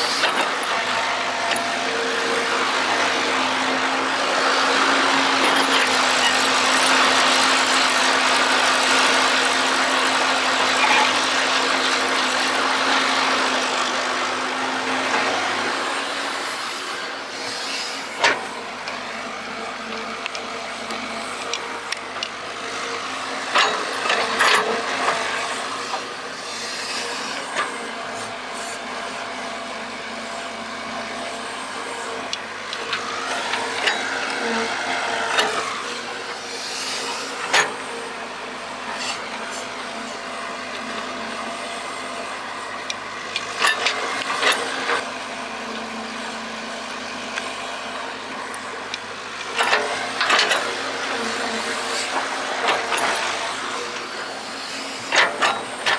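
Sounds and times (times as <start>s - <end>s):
excavator running: 0.0s - 55.9s
hydraulic whine: 0.0s - 55.9s.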